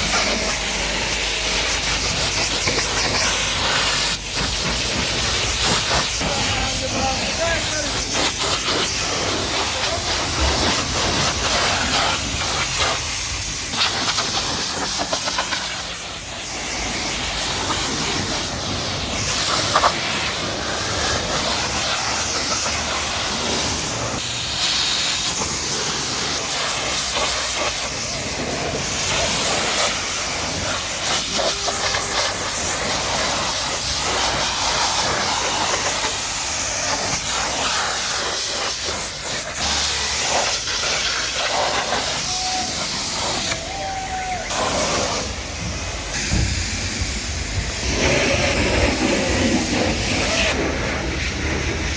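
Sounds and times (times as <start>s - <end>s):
water spray hitting car body: 0.0s - 51.9s.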